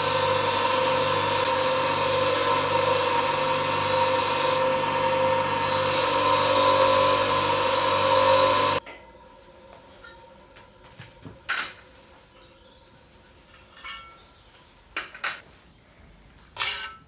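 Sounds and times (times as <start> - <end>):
power tool whining: 0.0 - 8.8.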